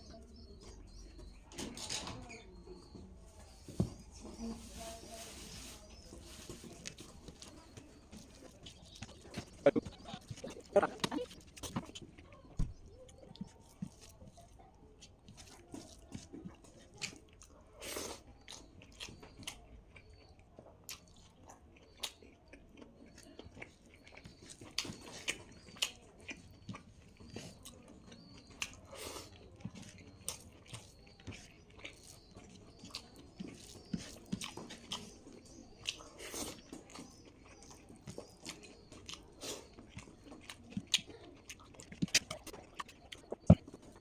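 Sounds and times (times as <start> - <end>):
chewing and biting food: 5.9 - 44.0
wet mouth clicks: 9.4 - 12.0, 41.8 - 44.0.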